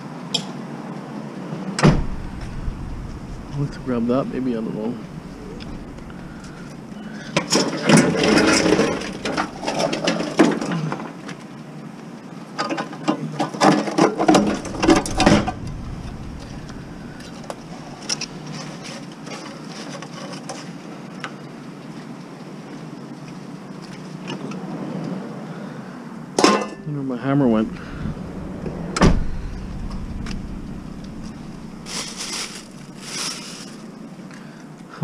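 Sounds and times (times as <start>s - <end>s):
scrap metal clanking and rattling: 1.8s - 10.8s, 13.5s - 20.6s, 27.7s - 34.0s.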